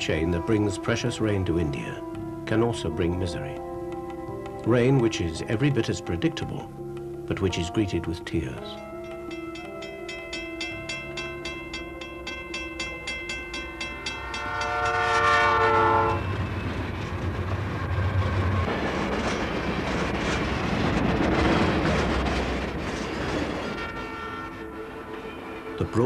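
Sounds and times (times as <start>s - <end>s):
train passing rushing noise: 9.3s - 26.0s
diesel locomotive horn: 14.2s - 16.5s, 23.6s - 26.0s.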